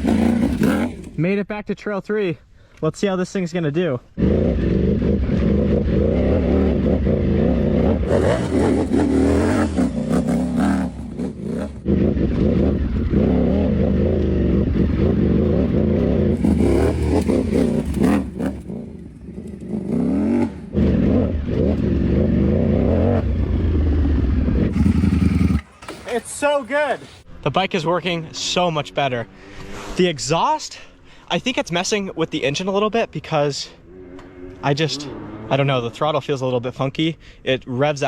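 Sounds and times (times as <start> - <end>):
motorcycle engine revving: 0.0 - 1.2, 4.2 - 27.3, 33.8 - 36.0.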